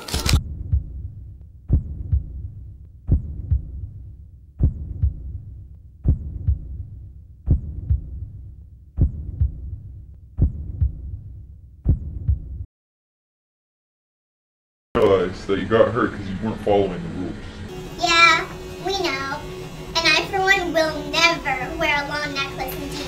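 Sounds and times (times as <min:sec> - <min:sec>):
heartbeat thuds: 0:00.4 - 0:12.7.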